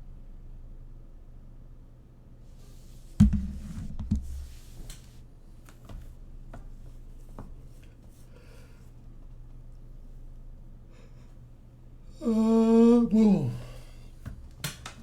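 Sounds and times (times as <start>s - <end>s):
heavy thump: 3.2s - 4.4s.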